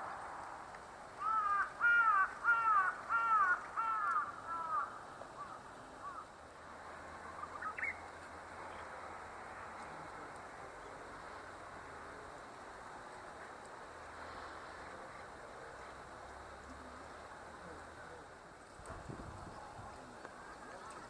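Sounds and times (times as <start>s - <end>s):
crow cawing: 1.2s - 6.3s.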